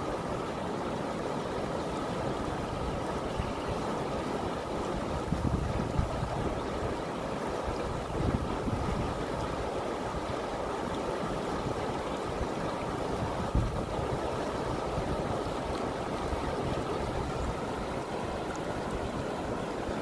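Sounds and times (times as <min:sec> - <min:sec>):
river water rushing: 0:00.0 - 0:20.0
wind bump on microphone: 0:05.2 - 0:06.5, 0:13.4 - 0:14.2.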